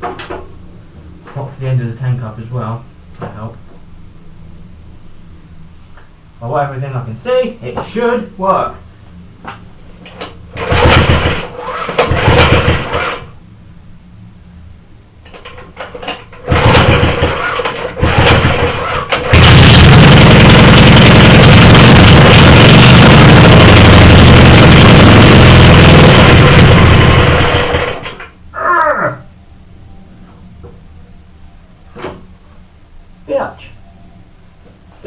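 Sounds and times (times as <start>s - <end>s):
pull-start cord pulls: 10.2s - 13.3s, 15.3s - 19.6s
two-stroke engine running: 10.5s - 13.3s, 16.4s - 28.3s.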